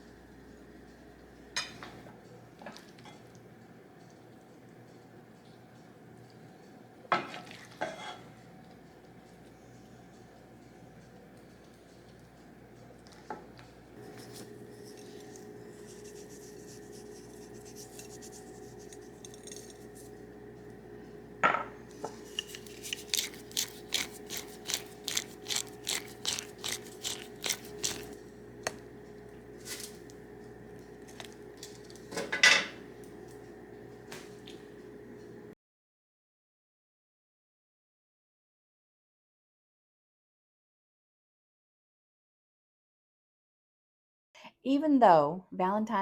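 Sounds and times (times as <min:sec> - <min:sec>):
low steady hum: 0:00.0 - 0:35.6
kitchen utensils clattering: 0:31.8 - 0:32.9.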